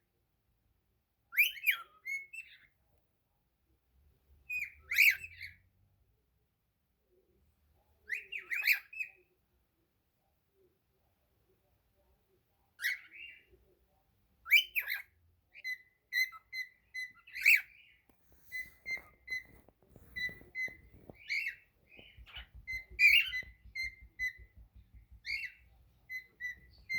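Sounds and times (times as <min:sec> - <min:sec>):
cockatiel whistling: 0:18.4 - 0:26.9.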